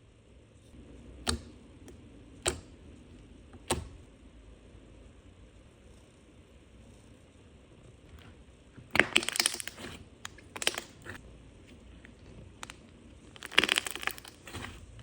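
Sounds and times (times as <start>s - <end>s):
crunchy slime squished by hand: 8.9s - 11.2s, 12.0s - 15.0s.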